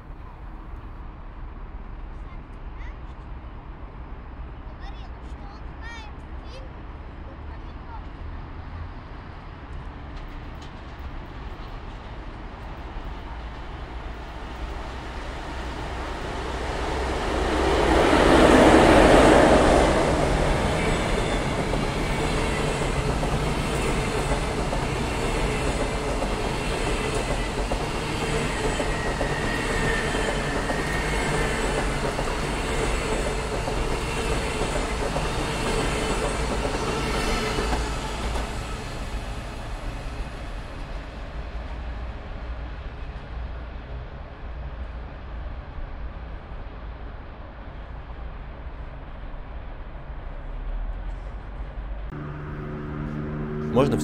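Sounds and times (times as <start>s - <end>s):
train passing: 3.6s - 54.0s.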